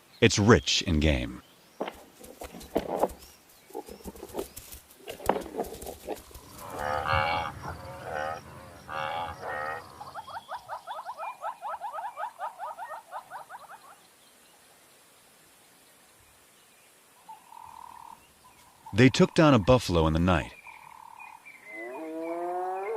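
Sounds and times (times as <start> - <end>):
buffalo bellowing: 6.1 - 10.3.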